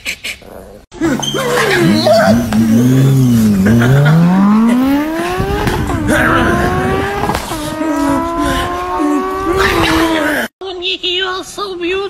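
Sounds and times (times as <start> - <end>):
car engine accelerating: 1.1 - 10.5.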